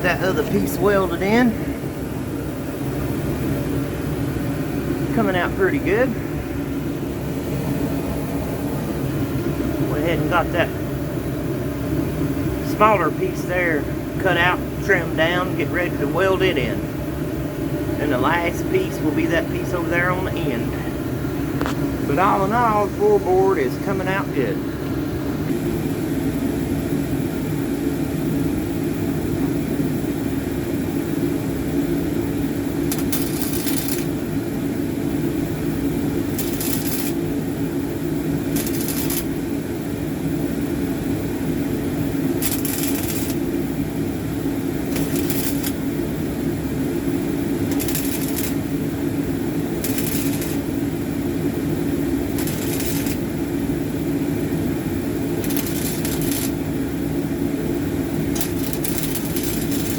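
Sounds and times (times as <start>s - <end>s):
steady low hum: 0.0s - 59.9s
crackling welding sizzles: 30.4s - 59.9s.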